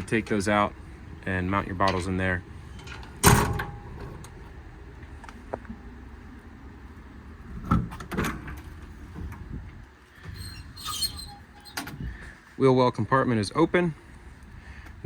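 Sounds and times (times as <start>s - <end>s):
low steady rumble: 0.0s - 15.0s
metal door clunks: 2.8s - 4.2s, 7.6s - 8.6s.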